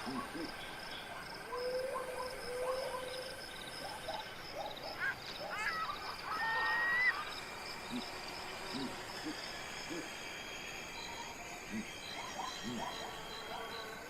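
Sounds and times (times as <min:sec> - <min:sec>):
chirping gliding animal calls: 0:00.0 - 0:14.0
high background chorus: 0:07.2 - 0:14.0.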